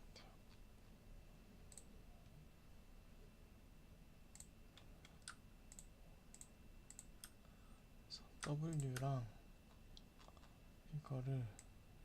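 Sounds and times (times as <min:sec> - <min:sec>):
computer mouse clicks: 0:01.7 - 0:01.9, 0:04.3 - 0:07.4, 0:08.4 - 0:09.1.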